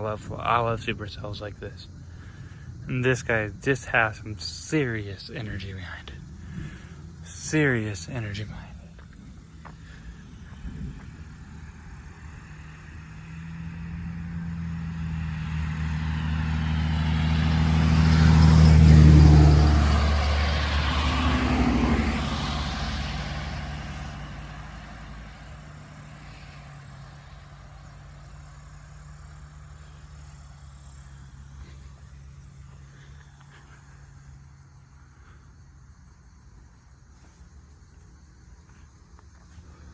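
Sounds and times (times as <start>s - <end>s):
vehicle driving past: 3.8s - 39.9s.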